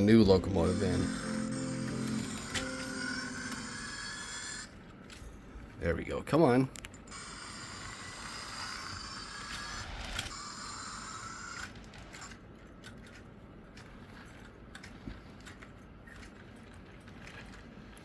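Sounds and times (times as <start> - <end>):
model train motor whining: 0.0 - 4.8, 7.1 - 12.4.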